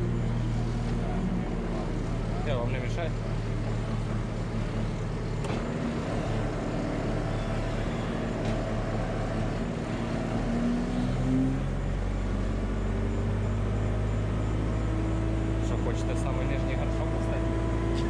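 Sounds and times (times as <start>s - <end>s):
tractor engine running: 0.0s - 10.5s.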